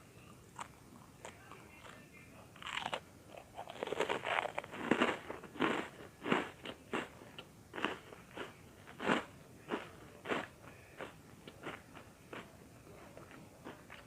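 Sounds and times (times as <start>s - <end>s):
crunchy food chewing: 2.6s - 14.0s.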